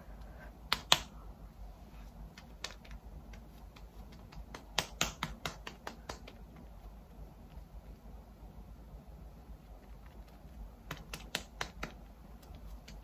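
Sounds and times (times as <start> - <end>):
fingertips tapping skin: 2.3 - 7.0, 9.8 - 13.0.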